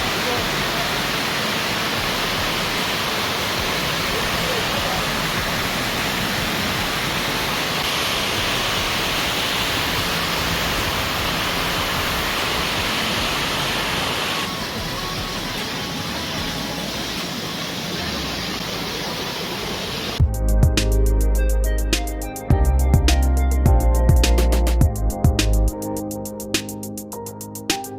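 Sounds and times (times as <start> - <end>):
waterfall rushing: 0.0 - 20.2.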